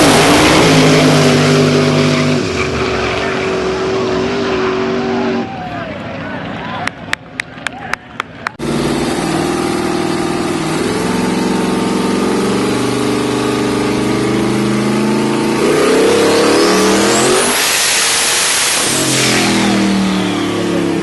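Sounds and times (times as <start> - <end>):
car engine revving at full throttle: 0.0 - 5.6, 8.6 - 21.0
loud rushing hiss: 16.4 - 20.2.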